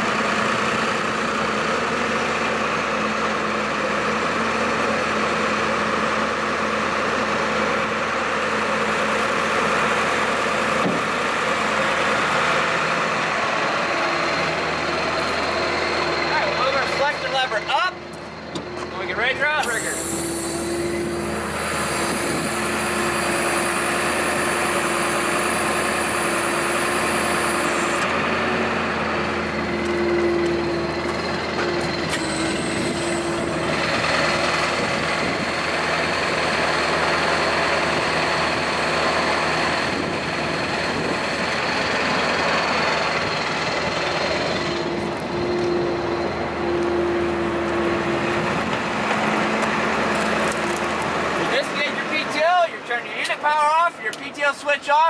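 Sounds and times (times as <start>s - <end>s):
truck engine hum: 0.0s - 55.0s
hydraulic hiss: 19.6s - 28.2s, 32.1s - 34.8s.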